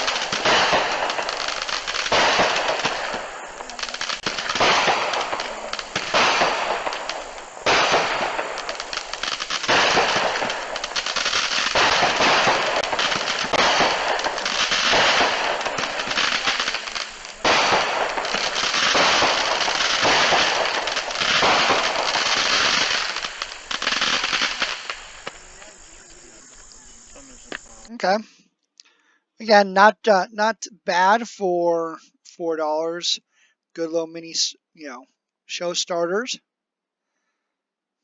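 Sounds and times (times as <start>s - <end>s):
firework cakes firing rapid shots: 0.0s - 27.9s.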